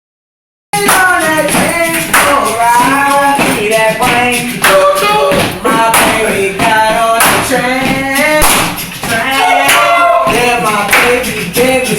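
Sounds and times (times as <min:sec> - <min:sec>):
clap-like beat: 0:00.8 - 0:11.9
person singing: 0:00.8 - 0:11.9.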